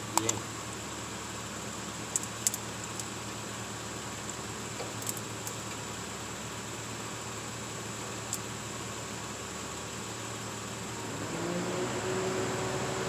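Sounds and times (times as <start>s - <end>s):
light clicks and taps of metal parts: 0.1s - 0.4s, 2.1s - 3.1s, 4.2s - 5.9s.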